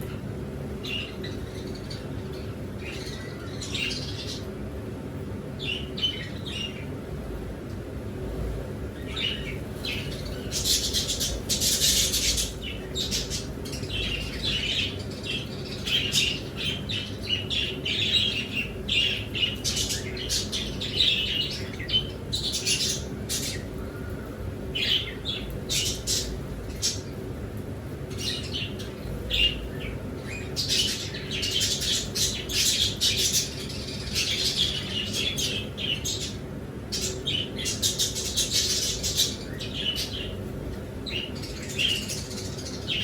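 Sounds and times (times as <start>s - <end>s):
birds chirping and squawking: 0.0s - 7.5s, 8.1s - 43.0s
steady low hum: 0.0s - 43.0s.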